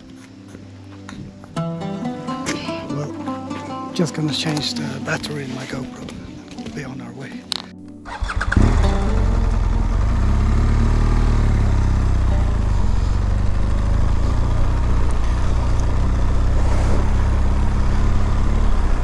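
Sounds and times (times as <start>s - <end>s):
motorcycle engine idling: 8.0s - 19.0s.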